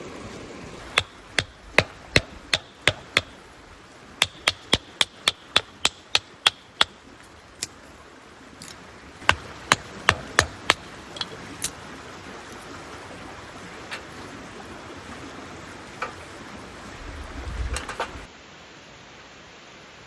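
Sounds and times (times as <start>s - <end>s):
tool striking sharp knocks: 0.8s - 3.5s, 4.2s - 7.0s, 9.2s - 11.3s.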